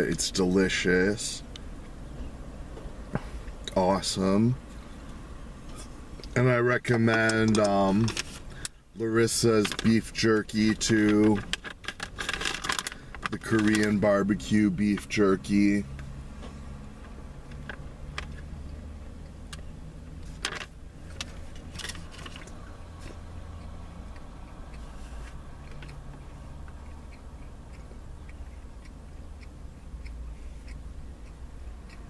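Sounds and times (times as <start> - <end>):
car cabin hum: 0.0 - 23.2
man chewing jerky: 21.0 - 32.0.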